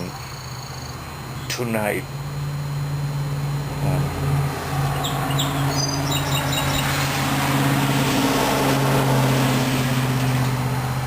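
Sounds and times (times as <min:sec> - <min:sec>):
engine hum: 0:00.0 - 0:11.0
bird chirps: 0:04.9 - 0:07.0.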